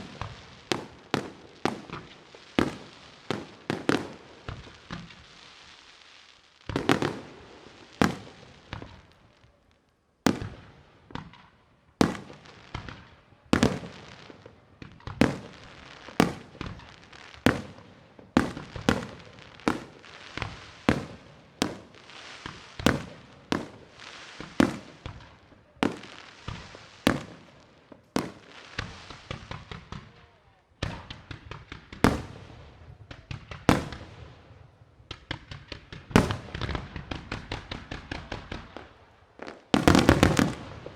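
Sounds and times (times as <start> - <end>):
firework shells bursting: 39.6 - 40.9.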